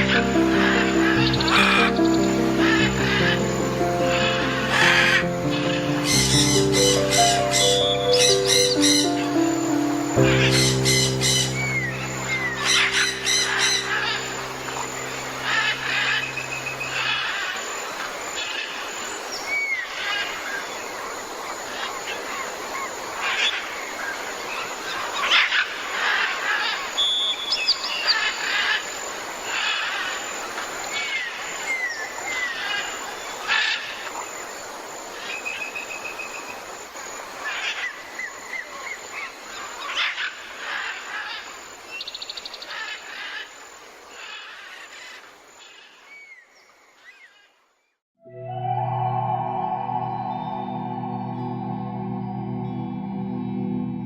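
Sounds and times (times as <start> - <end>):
birds chirping and trilling: 0.0 - 18.8.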